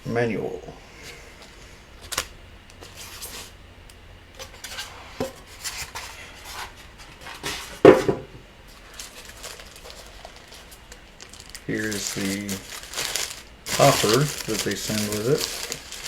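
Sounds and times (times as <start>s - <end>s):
packaging rustling: 8.7s - 16.0s.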